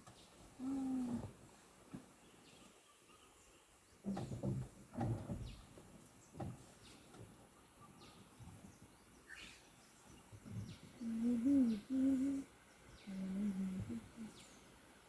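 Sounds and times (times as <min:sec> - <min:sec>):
faint outdoor background: 0:00.0 - 0:15.0
low animal calls: 0:10.4 - 0:14.6.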